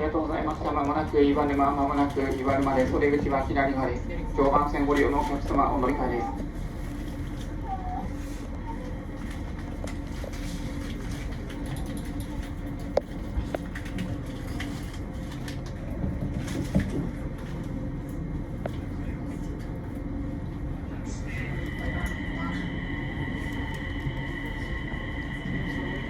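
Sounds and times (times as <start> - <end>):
train rumbling on rails: 0.0 - 26.0.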